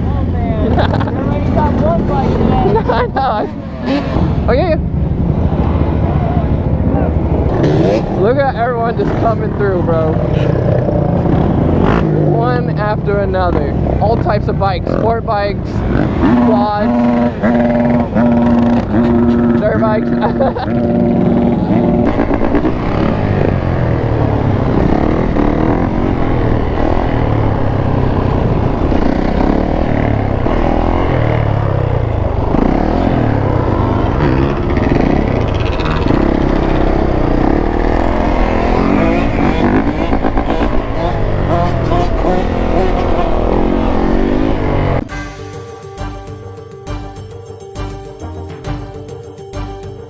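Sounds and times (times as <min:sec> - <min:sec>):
motorcycles passing by revving: 0:00.0 - 0:45.2
music: 0:45.0 - 0:50.0.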